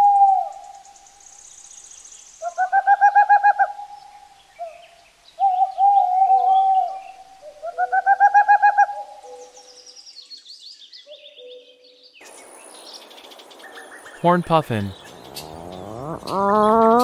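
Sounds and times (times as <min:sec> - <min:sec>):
owl hooting: 0:02.4 - 0:03.9, 0:05.4 - 0:09.4, 0:15.0 - 0:17.0
small birds chirping: 0:09.3 - 0:17.0.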